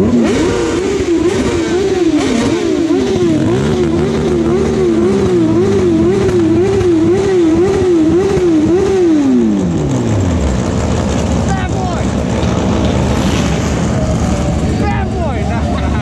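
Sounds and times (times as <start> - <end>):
motorbike engine revving: 0.0 - 16.0.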